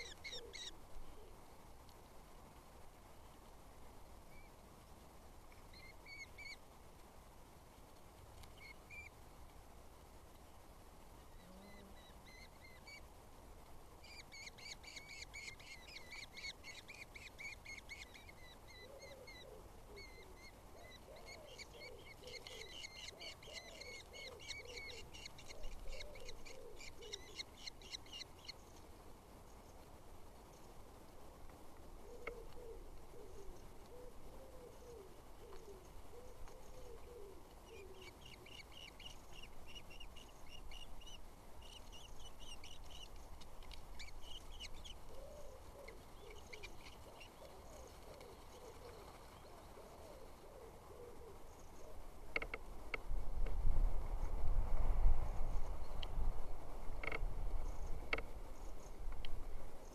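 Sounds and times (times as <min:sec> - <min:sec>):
lower-pitched bird calls: 0:00.0 - 0:01.4, 0:05.6 - 0:06.6, 0:11.3 - 0:13.0, 0:14.0 - 0:28.8, 0:32.0 - 0:43.2, 0:43.9 - 0:52.6.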